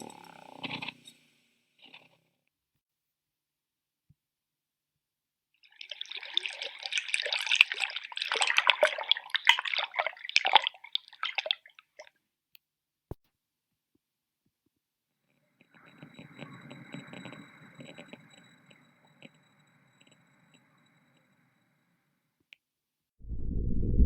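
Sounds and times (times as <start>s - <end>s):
underwater crackling and clicks: 15.6s - 20.7s.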